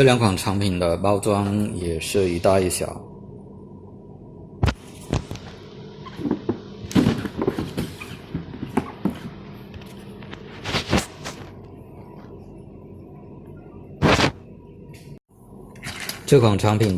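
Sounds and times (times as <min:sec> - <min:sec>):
boxes knocking and clattering: 0:06.2 - 0:09.4.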